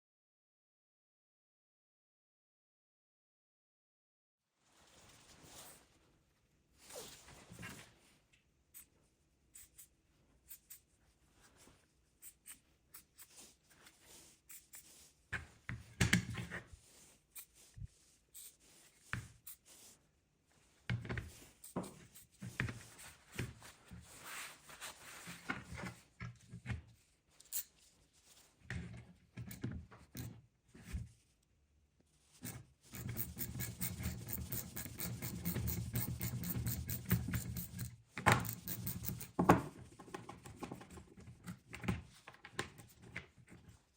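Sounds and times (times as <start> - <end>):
fast steady scraping: 32.9 - 39.4.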